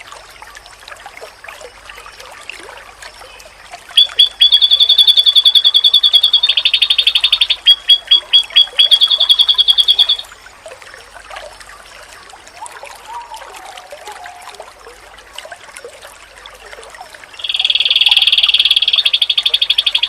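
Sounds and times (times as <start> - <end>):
trickling water: 0.0 - 20.0
animal calls: 4.0 - 10.2
bird singing fast high notes: 4.0 - 10.2, 17.4 - 20.0.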